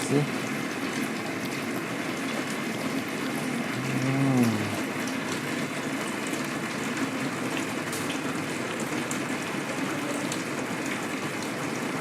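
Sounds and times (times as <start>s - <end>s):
rain falling steadily: 0.0s - 12.0s.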